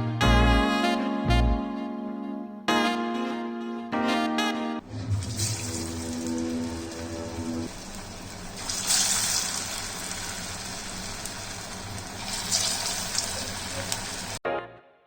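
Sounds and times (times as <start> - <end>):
background music with sax tune: 0.0 - 4.9
water running from a tap: 5.0 - 14.4.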